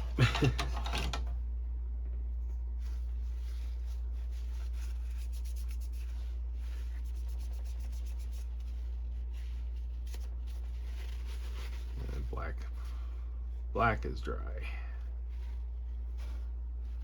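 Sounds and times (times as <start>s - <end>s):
steady low hum: 0.0s - 17.0s
print head rubbing on paper towel: 2.7s - 13.7s, 15.0s - 17.0s.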